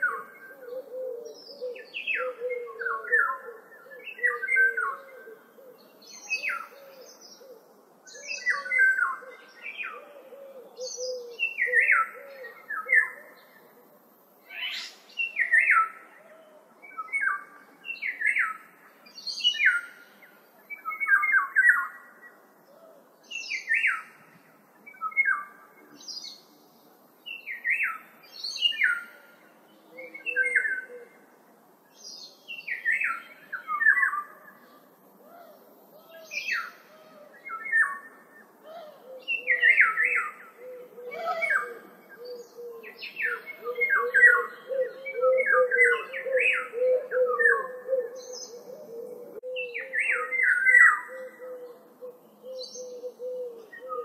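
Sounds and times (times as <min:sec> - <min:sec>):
bird chirping: 0:31.9 - 0:54.0.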